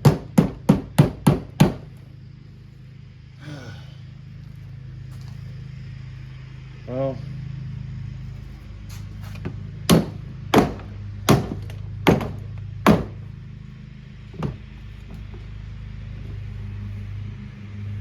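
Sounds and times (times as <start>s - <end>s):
heavy blows on washing machine: 0.0s - 2.0s, 9.4s - 13.3s, 14.3s - 14.8s
steady low hum: 0.0s - 18.0s.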